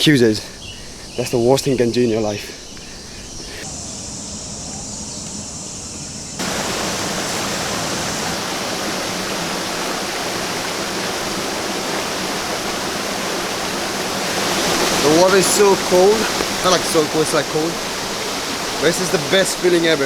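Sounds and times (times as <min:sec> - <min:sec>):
outdoor background: 0:00.0 - 0:20.0
stream water rushing: 0:06.4 - 0:20.0.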